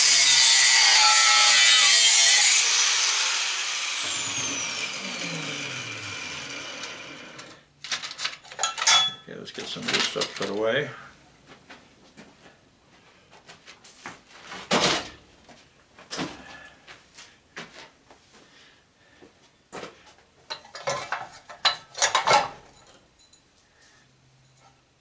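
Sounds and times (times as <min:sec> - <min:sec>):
metal hand tools clattering: 0:07.9 - 0:10.5, 0:20.5 - 0:23.4.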